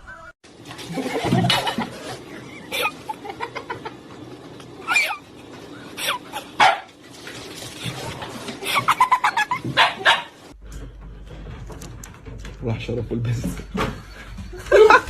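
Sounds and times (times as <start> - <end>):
dog barking: 6.6 - 6.9, 9.8 - 10.4.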